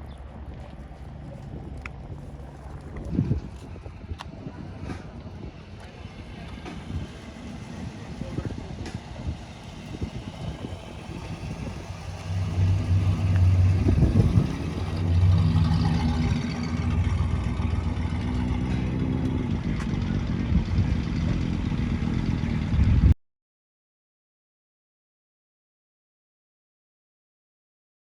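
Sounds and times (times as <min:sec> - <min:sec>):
car engine revving: 0:00.3 - 0:23.1.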